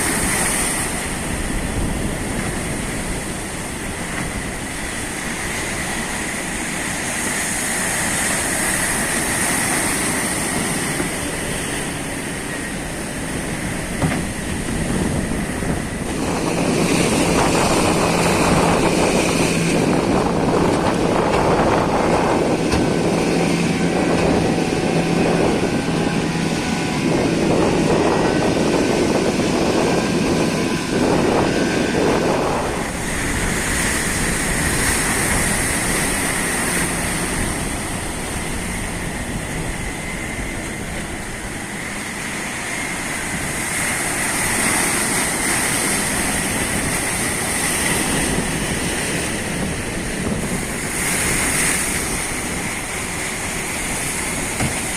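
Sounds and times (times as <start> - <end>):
wind rushing: 0.0 - 43.8
boat engine running: 0.0 - 54.9
water rushing: 0.0 - 54.9.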